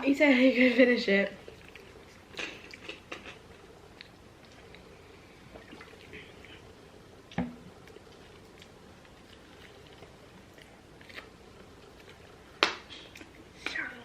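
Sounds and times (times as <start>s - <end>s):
wet mouth eating noises: 1.5s - 4.9s.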